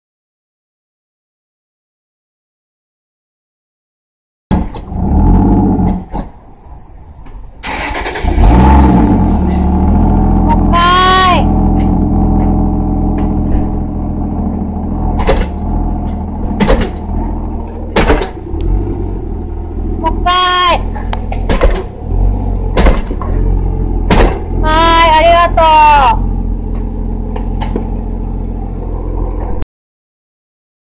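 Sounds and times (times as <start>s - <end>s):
sharp knocks: 4.5s - 4.9s, 15.2s - 17.2s, 17.9s - 18.5s, 21.0s - 22.0s, 22.7s - 24.6s
car engine revving: 4.5s - 29.6s.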